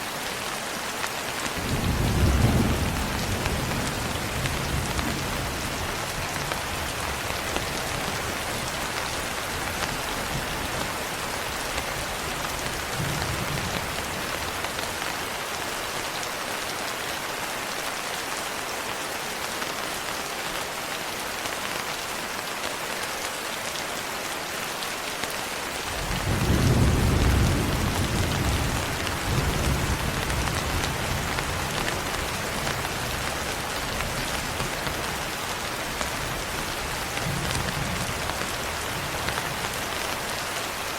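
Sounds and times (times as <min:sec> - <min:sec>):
steady rain falling: 0:00.0 - 0:40.9
thunder rumbling: 0:01.6 - 0:08.6, 0:25.9 - 0:33.4.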